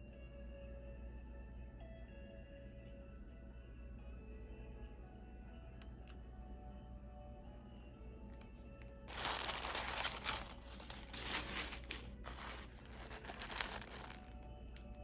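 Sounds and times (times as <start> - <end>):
soft background music: 0.0 - 15.0
packing material crinkling: 8.8 - 15.0.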